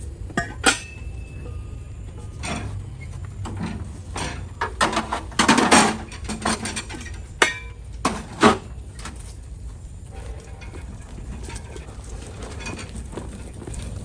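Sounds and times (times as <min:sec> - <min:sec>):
hard objects clattering: 0:00.0 - 0:09.4.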